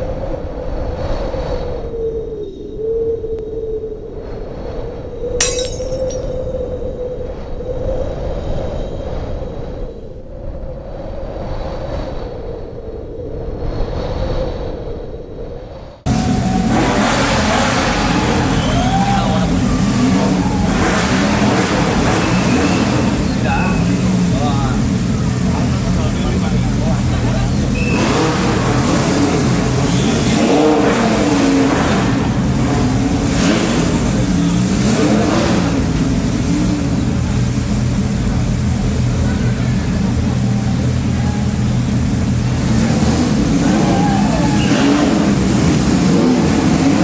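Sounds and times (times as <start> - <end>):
car engine noise: 16.1 - 47.0.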